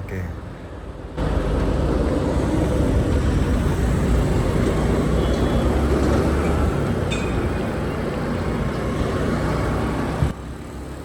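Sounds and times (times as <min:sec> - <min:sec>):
motorcycle engine and road noise: 0:00.7 - 0:11.0.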